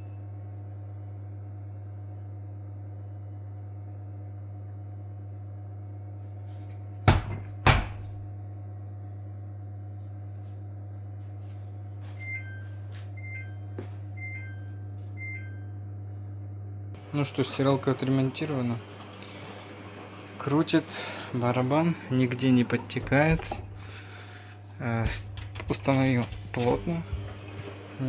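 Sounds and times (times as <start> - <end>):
washing machine humming: 0.0 - 28.0
loud knocks: 7.1 - 8.2.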